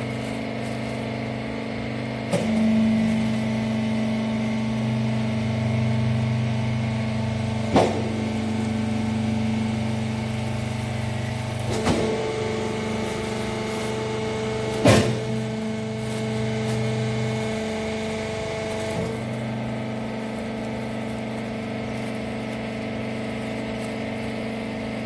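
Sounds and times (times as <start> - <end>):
baling machine humming: 0.0 - 25.0
sharp machine clunk: 11.6 - 14.0, 14.6 - 15.6.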